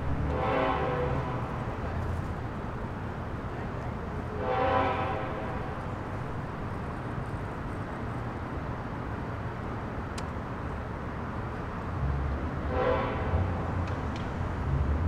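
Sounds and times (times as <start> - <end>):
freight train rumbling past: 0.0 - 9.8, 11.3 - 15.0
locomotive horn: 0.2 - 1.9, 4.2 - 6.0, 12.6 - 13.7.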